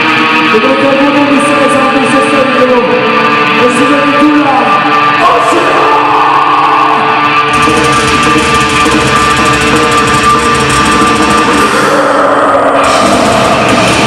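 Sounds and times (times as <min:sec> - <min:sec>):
electric guitar held notes: 0:00.0 - 0:14.0
heavy metal band playing: 0:00.0 - 0:14.0.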